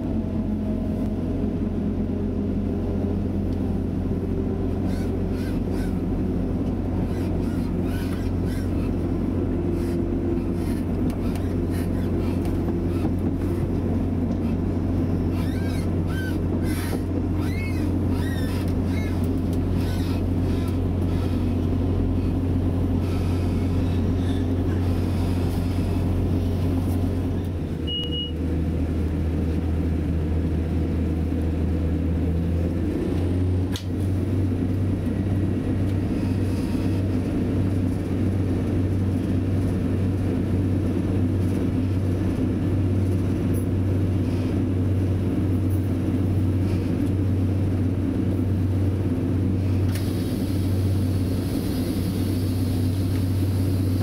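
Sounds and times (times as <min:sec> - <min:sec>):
diesel engine drone: 0:00.0 - 0:54.0
wheel and rail noise: 0:00.0 - 0:54.0
faint high squeals: 0:15.1 - 0:21.4
short high beep: 0:27.8 - 0:28.4.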